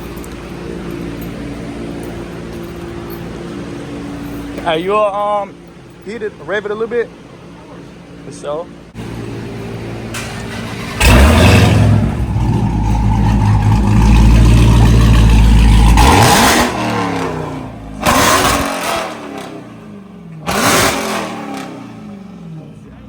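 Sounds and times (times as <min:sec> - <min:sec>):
car engine revving: 0:09.0 - 0:23.0.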